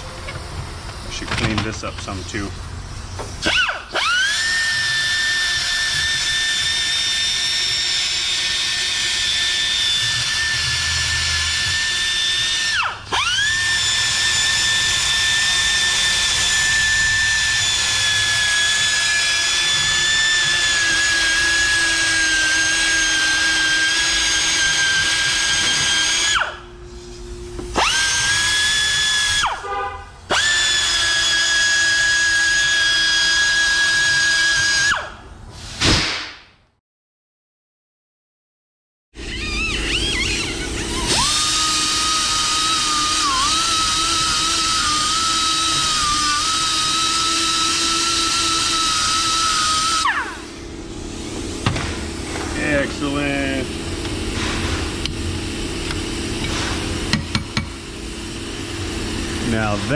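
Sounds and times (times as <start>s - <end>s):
rotary tool grinding metal: 3.4s - 26.6s, 39.2s - 50.6s.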